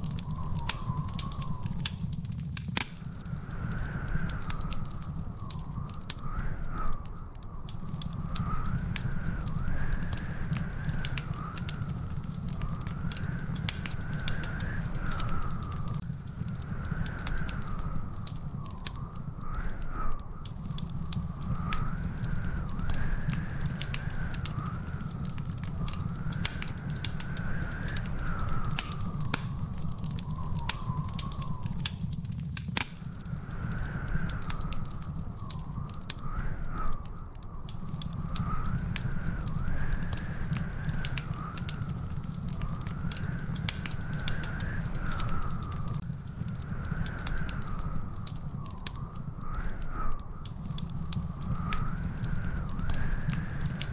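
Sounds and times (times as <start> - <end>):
faint wavering whistle-like tone: 0.0 - 2.2, 25.7 - 32.2
wood fire crackling and popping: 0.0 - 53.9.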